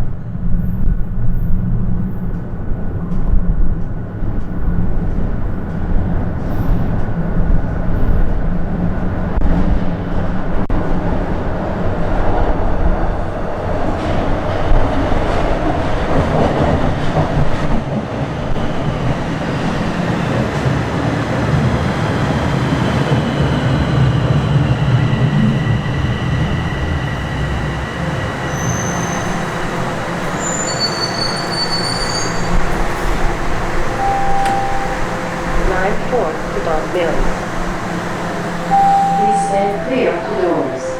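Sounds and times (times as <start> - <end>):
subway train rumbling: 0.0 - 40.9
wheel squeals: 22.9 - 40.9.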